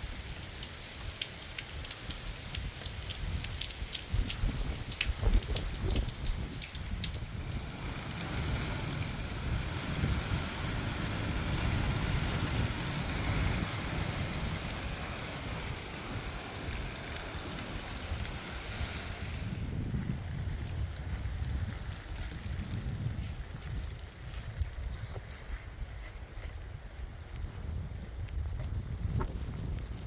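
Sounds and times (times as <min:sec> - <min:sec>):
heavy rain: 0:00.0 - 0:23.9
wind rumbling on microphone: 0:00.0 - 0:30.0
sharp crackling clicks: 0:00.3 - 0:07.6.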